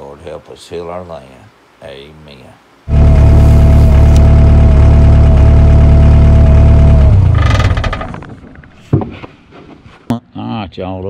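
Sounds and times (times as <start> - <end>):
engine running: 2.9 - 8.4
high rattle: 2.9 - 8.7.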